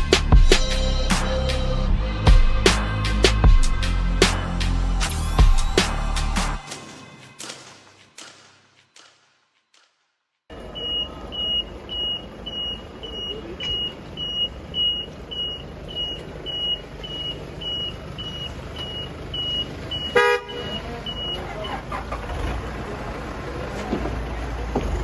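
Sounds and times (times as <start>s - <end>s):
background music: 0.0s - 9.4s
high electronic beep: 10.7s - 21.4s.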